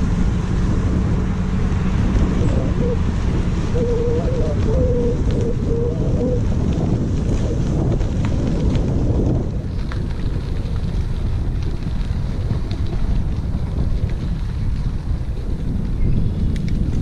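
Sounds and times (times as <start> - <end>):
wind buffeting microphone: 0.0 - 17.0
bicycle clicks and rattles: 4.6 - 17.0.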